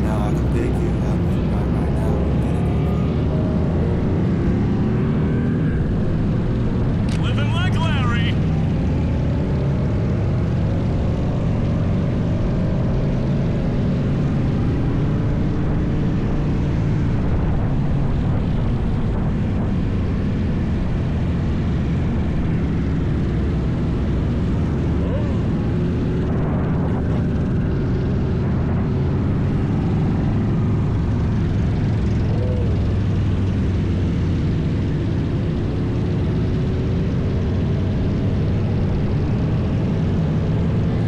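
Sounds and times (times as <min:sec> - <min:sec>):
faint engine tones: 0:00.0 - 0:07.0.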